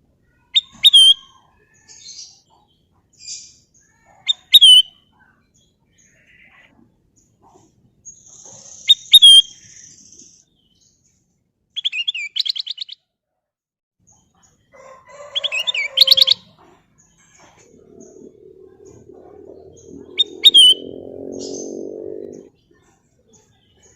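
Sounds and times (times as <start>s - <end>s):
bulbul singing whistled notes: 18.8s - 22.4s.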